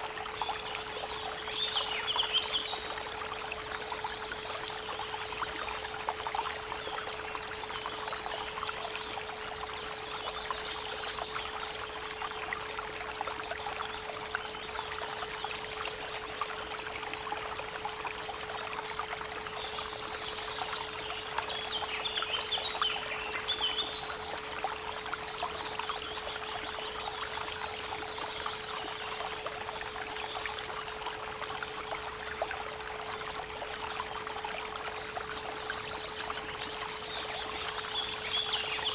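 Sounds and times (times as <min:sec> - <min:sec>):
creek water babbling over stones: 0:00.0 - 0:38.9
small birds chirping: 0:19.4 - 0:31.6, 0:33.3 - 0:38.9.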